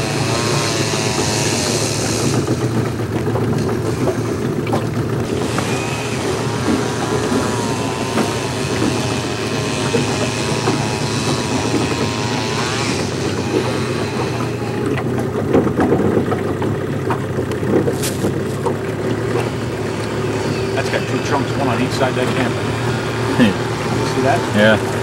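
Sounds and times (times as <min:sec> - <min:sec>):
motorboat engine running: 0:00.0 - 0:25.0
wavering whine: 0:05.1 - 0:15.3.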